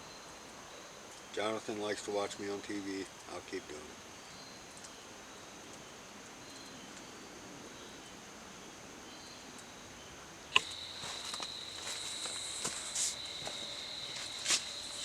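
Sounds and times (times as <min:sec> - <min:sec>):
insects droning: 0:00.0 - 0:15.0
rustling: 0:10.6 - 0:15.0.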